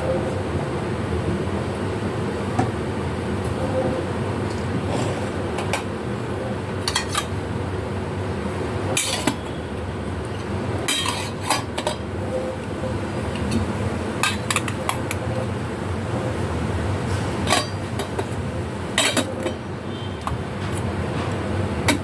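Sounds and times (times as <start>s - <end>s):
metal utensils clinking: 6.8s - 7.3s, 8.9s - 9.4s, 10.9s - 12.0s, 14.2s - 15.2s, 17.4s - 19.6s.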